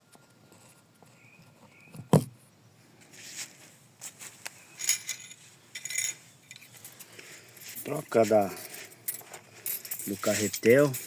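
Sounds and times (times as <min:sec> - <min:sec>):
small hard parts clicking: 0:04.8 - 0:11.0.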